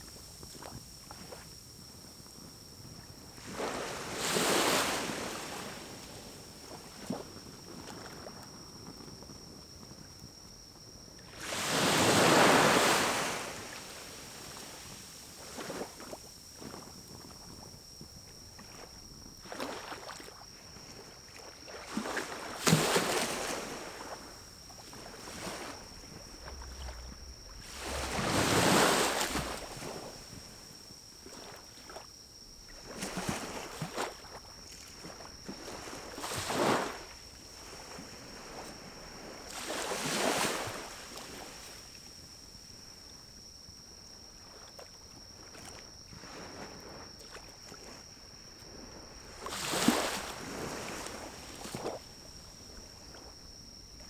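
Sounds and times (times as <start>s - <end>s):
whooshing rush of air: 25.8s - 30.7s.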